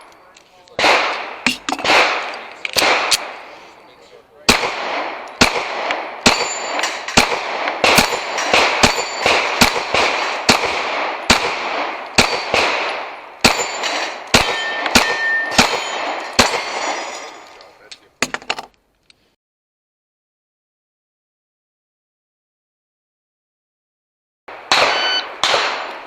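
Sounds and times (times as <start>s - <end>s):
steel targets clanging: 0.0s - 4.1s, 6.2s - 10.4s, 12.2s - 18.6s
echoing pistol shots: 0.8s - 3.8s, 4.5s - 17.1s, 24.5s - 26.0s.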